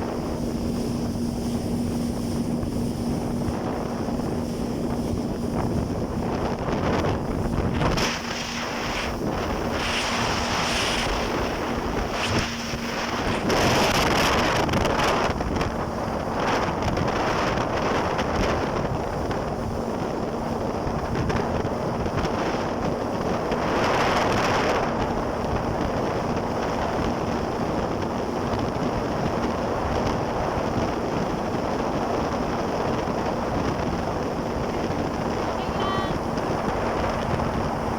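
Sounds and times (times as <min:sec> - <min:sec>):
rushing water: 0:00.0 - 0:15.4
jet ski engine hum: 0:00.0 - 0:37.9
wind buffeting microphone: 0:00.0 - 0:37.9.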